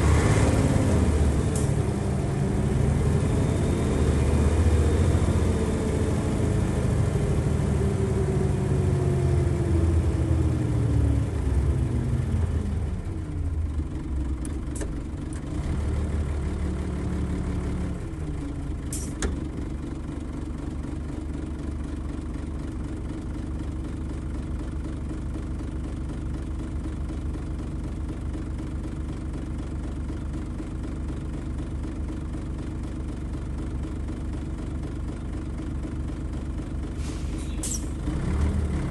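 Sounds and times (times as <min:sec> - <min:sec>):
bus diesel engine revving down: 0:00.0 - 0:13.9, 0:15.3 - 0:19.6, 0:36.8 - 0:38.9
diesel engine idling: 0:00.0 - 0:38.9.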